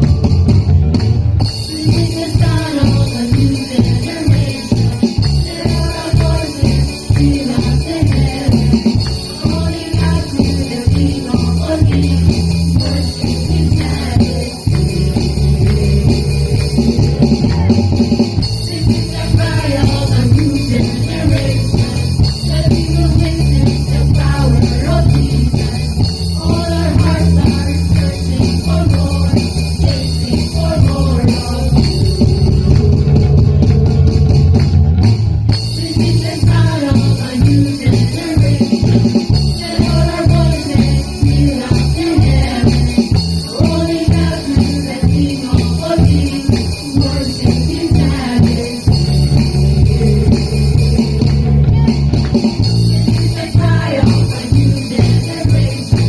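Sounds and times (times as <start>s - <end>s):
band playing a song: 0.0s - 56.0s
loud bass line: 0.0s - 56.0s
person singing: 1.6s - 16.6s, 18.6s - 33.8s, 35.8s - 39.0s, 39.6s - 48.9s.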